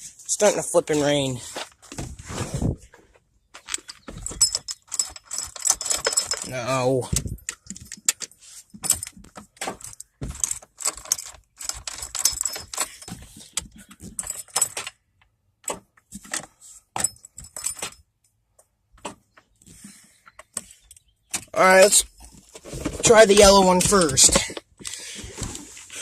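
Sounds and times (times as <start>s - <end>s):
light handling clicks and knocks: 3.0s - 25.9s
clinking and rattling: 3.6s - 15.0s, 15.6s - 18.1s.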